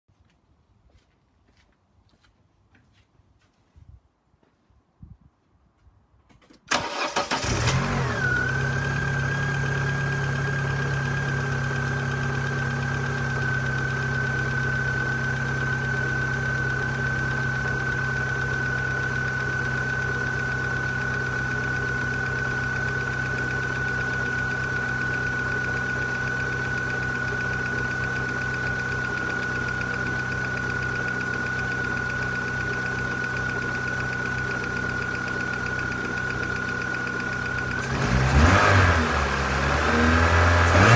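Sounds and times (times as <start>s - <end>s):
car engine starting and idling: 6.4s - 40.9s
engine ticking: 9.6s - 38.8s.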